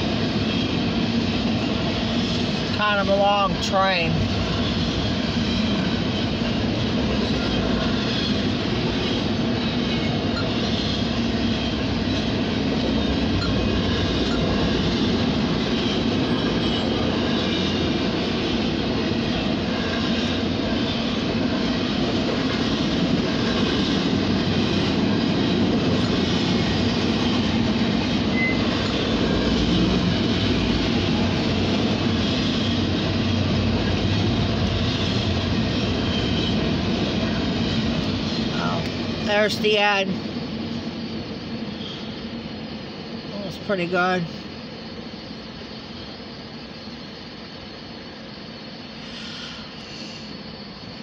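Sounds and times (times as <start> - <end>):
freight train wheels clattering: 0.0 - 39.4.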